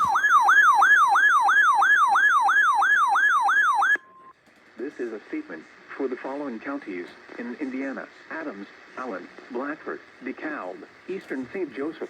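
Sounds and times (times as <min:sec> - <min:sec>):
electronic alert siren yelping: 0:00.0 - 0:04.1.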